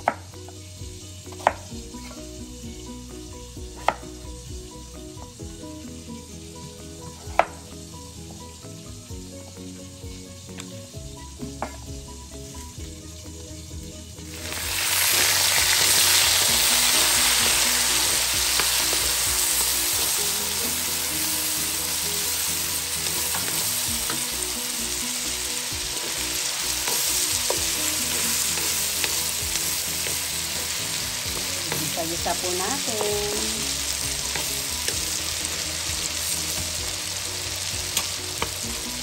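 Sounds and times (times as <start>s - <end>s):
food sizzling in hot oil: 0.0s - 39.0s.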